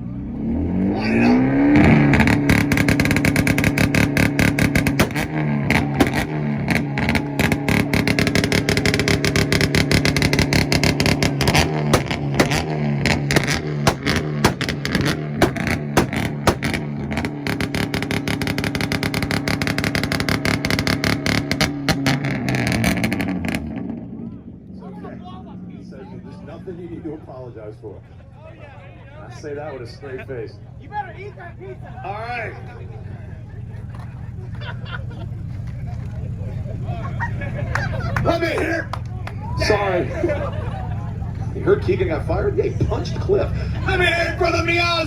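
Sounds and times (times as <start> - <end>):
car engine held at high rev: 0.0 - 26.8
rapid exhaust popping and cracking: 1.7 - 24.7, 32.6 - 45.0.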